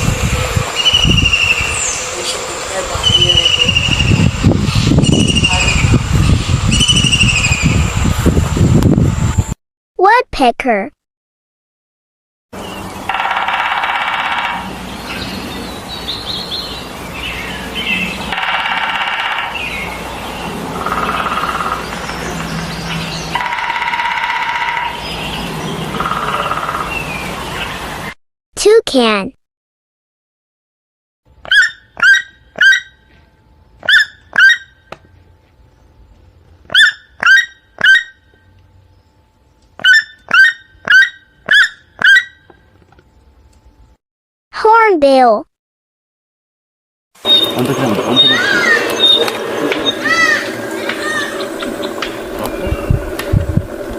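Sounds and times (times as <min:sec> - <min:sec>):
bird chirps: 0:00.8 - 0:02.4, 0:03.0 - 0:04.4, 0:05.0 - 0:06.0, 0:06.7 - 0:07.8, 0:47.2 - 0:53.0
woodpecker drumming: 0:12.6 - 0:16.5, 0:17.4 - 0:27.3, 0:33.8 - 0:35.1, 0:36.6 - 0:38.8, 0:39.6 - 0:42.7, 0:47.2 - 0:53.9
toucan honking yelps: 0:31.4 - 0:33.1, 0:33.8 - 0:34.9, 0:36.7 - 0:38.3, 0:39.8 - 0:42.6, 0:47.2 - 0:51.7.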